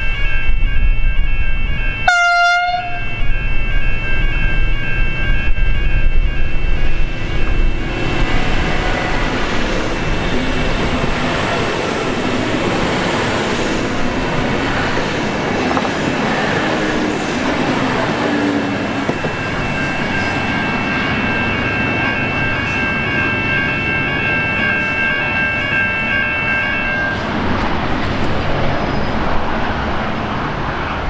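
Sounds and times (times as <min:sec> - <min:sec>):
train passing: 0:00.0 - 0:31.0
level-crossing bell ringing: 0:00.2 - 0:27.3.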